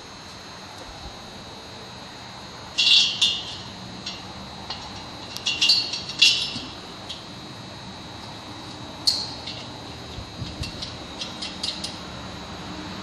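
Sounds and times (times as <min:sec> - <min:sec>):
metal hardware clinking and scraping: 0:02.8 - 0:07.3, 0:09.0 - 0:12.0.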